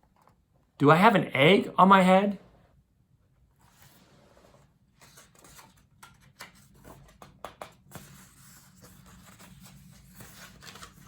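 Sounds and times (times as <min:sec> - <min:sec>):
book pages rustling: 0:03.5 - 0:11.0.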